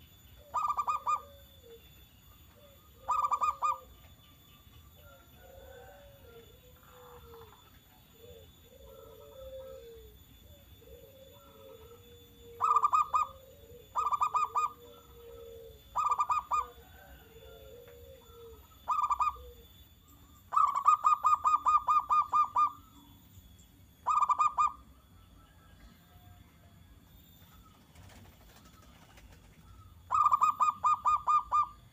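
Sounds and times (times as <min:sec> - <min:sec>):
dove cooing in staccato bursts: 0:00.0 - 0:01.8, 0:03.0 - 0:04.0, 0:05.7 - 0:19.7, 0:20.5 - 0:22.8, 0:24.0 - 0:24.8, 0:27.8 - 0:31.9.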